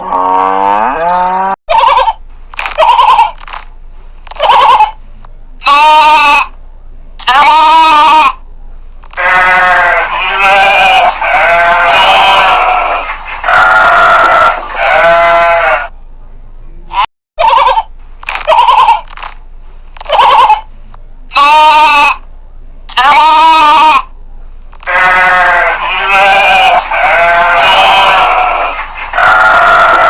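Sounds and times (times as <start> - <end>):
sheep bleating: 5.6 - 6.5, 7.2 - 8.4, 9.2 - 15.9, 21.3 - 22.2, 22.9 - 24.1, 24.8 - 30.0.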